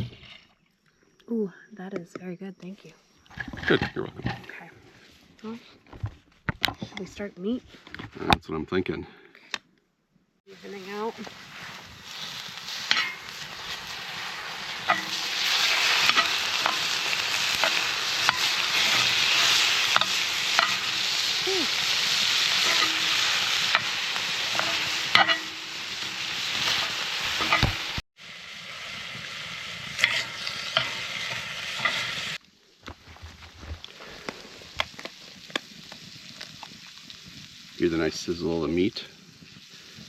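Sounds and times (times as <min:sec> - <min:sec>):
meat sizzling in a pan: 0:10.5 - 0:32.4, 0:34.0 - 0:40.0.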